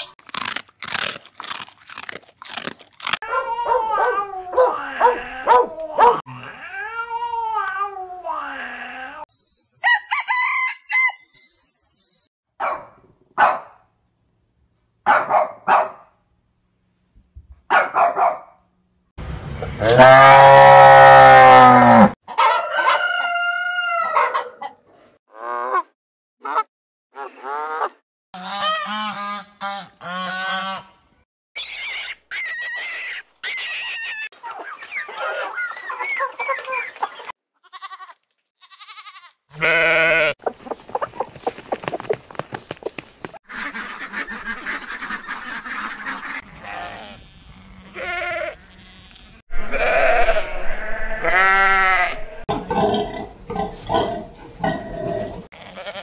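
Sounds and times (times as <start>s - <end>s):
farm fowl calls: 22.3s - 24.8s, 25.4s - 31.0s, 34.3s - 38.1s, 39.6s - 48.8s
animal calls: 39.6s - 46.9s.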